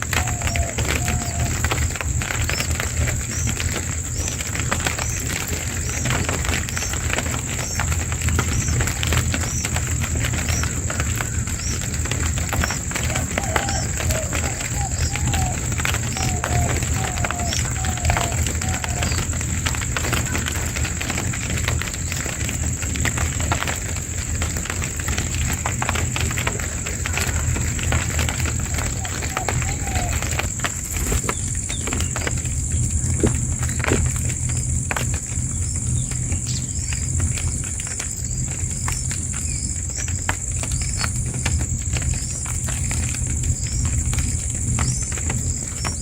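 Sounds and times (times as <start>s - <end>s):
bird chirping: 0.0s - 23.6s, 26.3s - 34.7s
rain drops pattering: 0.0s - 46.0s
low rumble: 30.3s - 46.0s.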